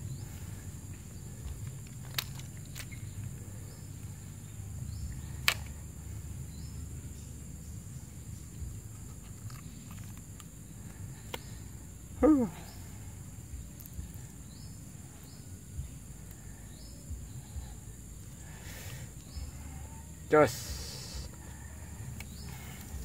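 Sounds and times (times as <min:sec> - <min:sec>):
insect buzz: 0:00.0 - 0:23.0
short high insect chirps: 0:00.0 - 0:23.0
loud vocal exclamation: 0:12.2 - 0:12.6.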